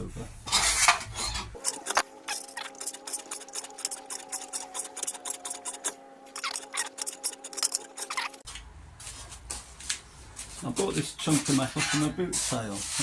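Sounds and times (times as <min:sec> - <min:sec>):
steady hum: 0:01.5 - 0:08.4.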